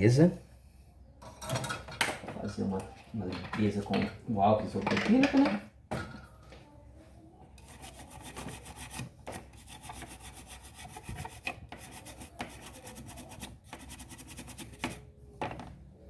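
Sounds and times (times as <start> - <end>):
scrubbing circuit board: 7.6 - 15.0.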